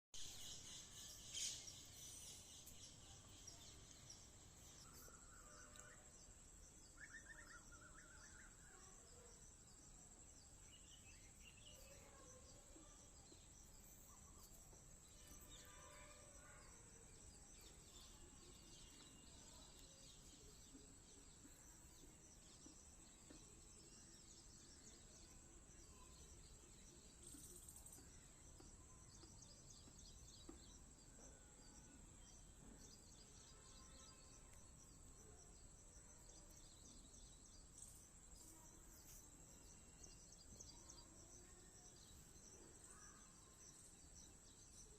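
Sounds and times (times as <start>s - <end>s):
faint birds chirping: 0.1s - 44.9s.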